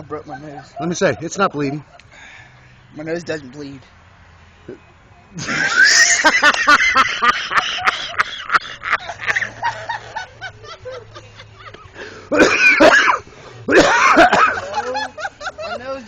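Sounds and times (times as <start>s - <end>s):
people laughing hard: 0.0s - 2.0s, 5.4s - 12.9s, 13.7s - 16.0s.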